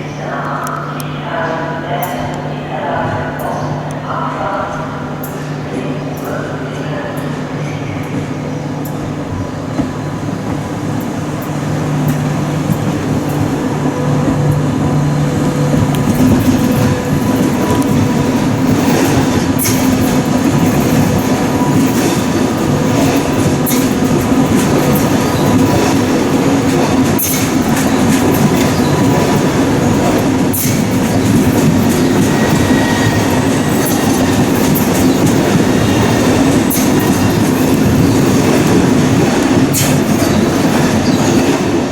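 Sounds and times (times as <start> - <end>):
train passing by: 0.0 - 41.9
wheels clicking over rail joints: 15.7 - 32.7.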